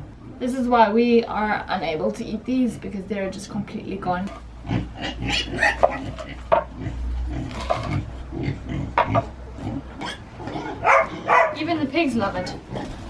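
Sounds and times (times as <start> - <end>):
pigs grunting: 4.4 - 11.6, 12.2 - 13.0.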